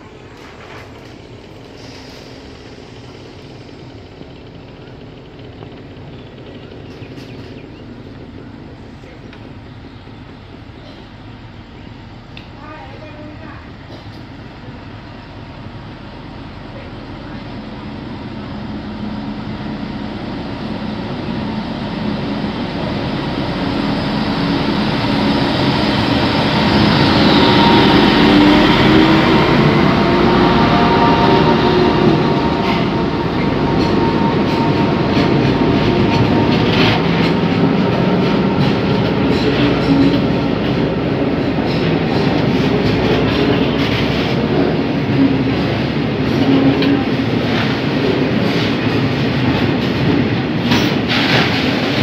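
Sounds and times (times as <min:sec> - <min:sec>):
diesel locomotive passing: 0:00.0 - 0:52.0
wheels clicking over rail joints: 0:04.1 - 0:09.6.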